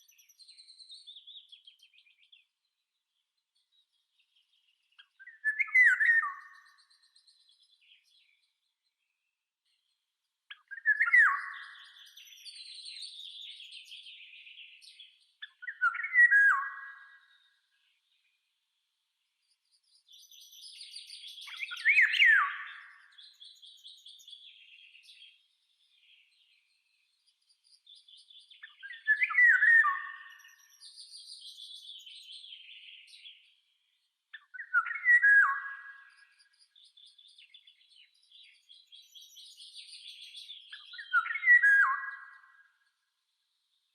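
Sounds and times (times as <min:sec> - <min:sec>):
loud whistled birdsong phrases: 0:00.0 - 0:18.4, 0:19.4 - 0:43.9
soft high bird chirping: 0:19.4 - 0:42.8.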